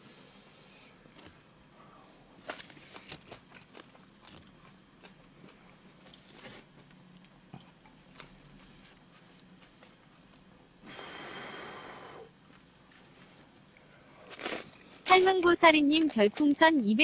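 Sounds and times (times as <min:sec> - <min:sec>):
person chewing noodles: 0:02.7 - 0:10.8, 0:12.2 - 0:15.0.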